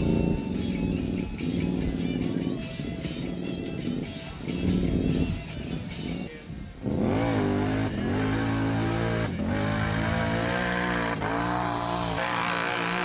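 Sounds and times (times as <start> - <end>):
off-road vehicle engine revving: 0.0 - 4.0, 6.8 - 13.0.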